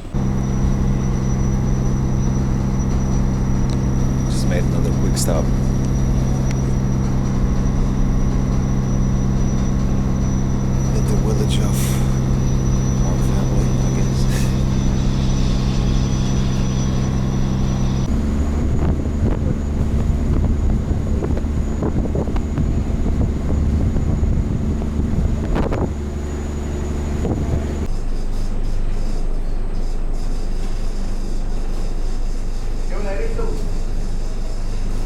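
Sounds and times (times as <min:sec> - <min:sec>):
boat engine droning: 0:00.0 - 0:35.0
wind on microphone: 0:00.1 - 0:27.9.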